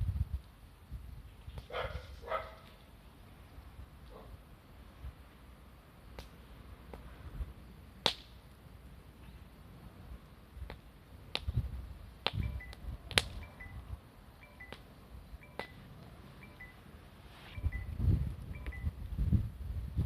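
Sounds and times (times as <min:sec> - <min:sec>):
wood fire crackling: 0:05.1 - 0:13.4.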